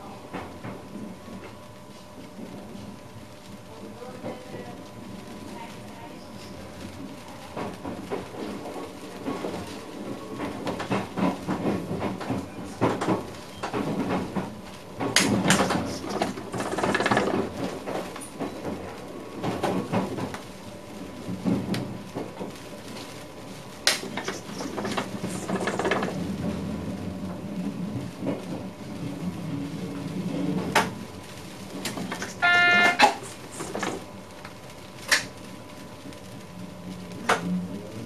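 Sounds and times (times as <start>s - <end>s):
clunks and rattles in train cab: 7.5s - 20.4s, 21.2s - 22.6s, 23.8s - 31.1s, 31.7s - 34.0s.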